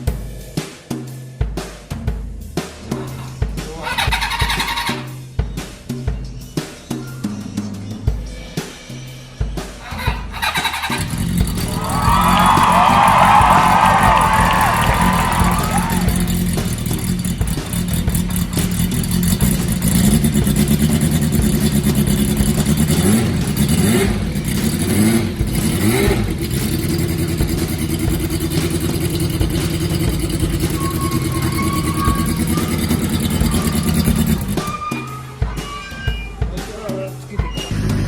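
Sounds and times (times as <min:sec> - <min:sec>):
motorcycle engine revving and idling: 0:07.6 - 0:34.8.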